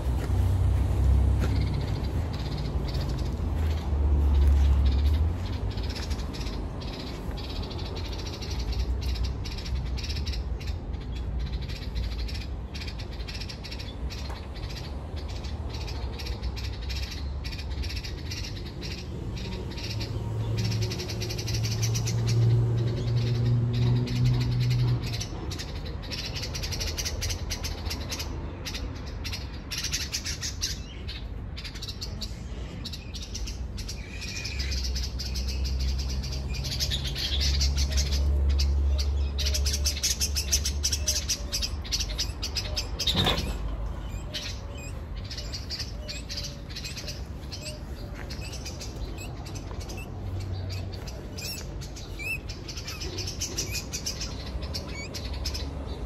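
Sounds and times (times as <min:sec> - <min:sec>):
small bird chirping: 0:33.2 - 0:56.0.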